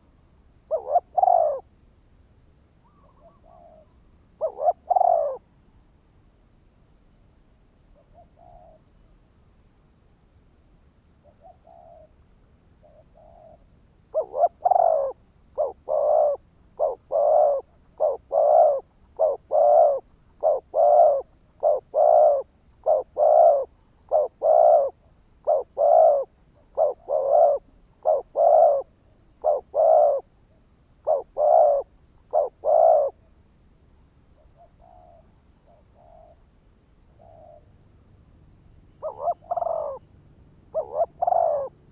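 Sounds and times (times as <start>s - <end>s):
dove cooing: 0.7s - 1.7s, 2.8s - 5.5s, 8.0s - 9.1s, 11.2s - 12.2s, 12.8s - 30.4s, 31.0s - 33.3s, 34.4s - 36.4s, 37.1s - 37.7s, 39.0s - 40.1s, 40.7s - 41.9s.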